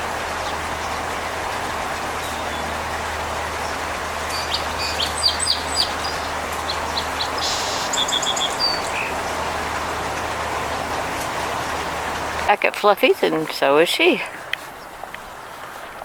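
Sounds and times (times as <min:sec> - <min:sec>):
steady background hiss: 0:00.0 - 0:16.0
small birds chirping: 0:03.6 - 0:09.2.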